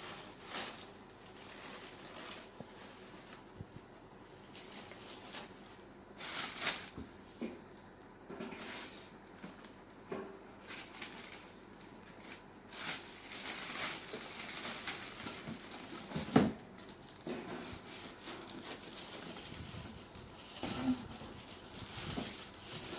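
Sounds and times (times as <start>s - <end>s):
packaging rustling: 4.4s - 5.6s, 10.6s - 22.9s.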